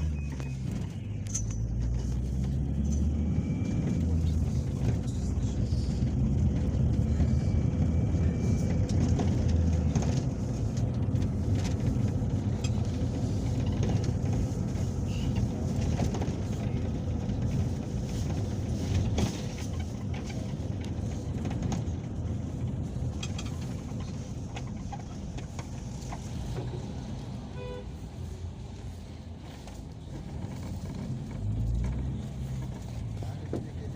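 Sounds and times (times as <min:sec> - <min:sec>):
vehicle engine and road rumble: 0:00.0 - 0:33.9.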